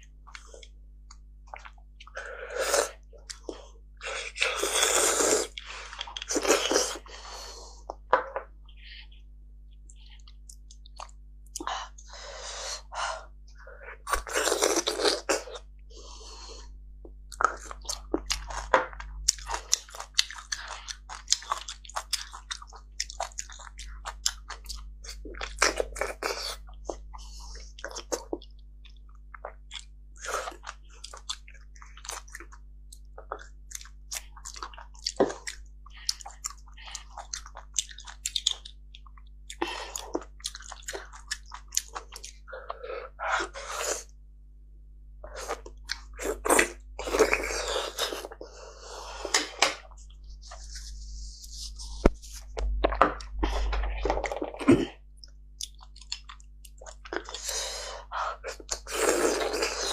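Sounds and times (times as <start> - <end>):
wet chewing clicks: 17.3 - 25.8, 26.6 - 42.5, 55.2 - 57.5.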